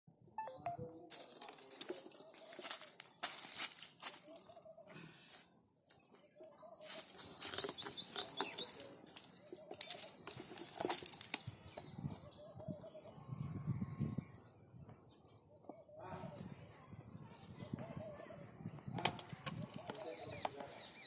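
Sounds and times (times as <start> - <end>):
high evenly spaced chirps: 0.4 - 2.4
birds singing: 0.4 - 21.0.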